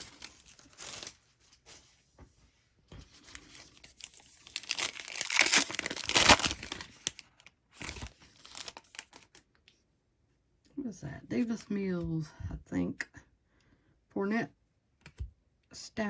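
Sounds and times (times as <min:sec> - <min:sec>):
wrapper tearing and crinkling: 0:00.0 - 0:01.2, 0:03.3 - 0:09.4.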